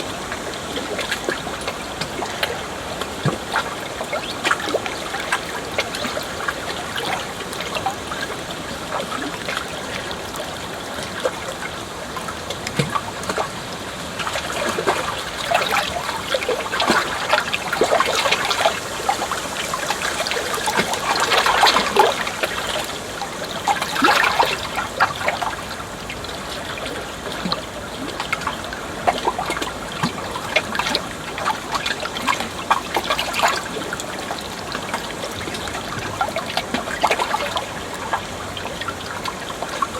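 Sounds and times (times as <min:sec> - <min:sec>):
water trickling over stones: 0:00.0 - 0:39.9.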